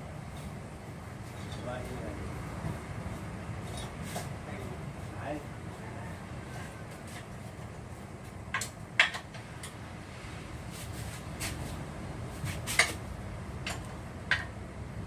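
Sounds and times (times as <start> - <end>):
steady low hum: 0.0 - 15.0
tools clicking and knocking: 8.5 - 9.8, 13.6 - 14.6.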